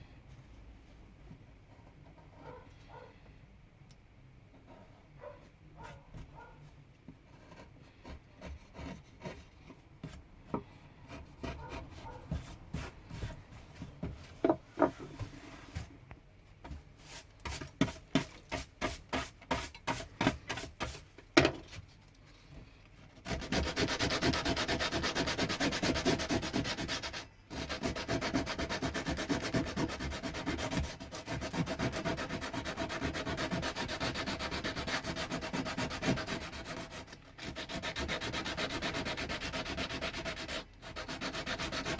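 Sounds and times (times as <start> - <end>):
hand tool scraping wood: 23.3 - 41.9
sanding wood: 23.3 - 41.9.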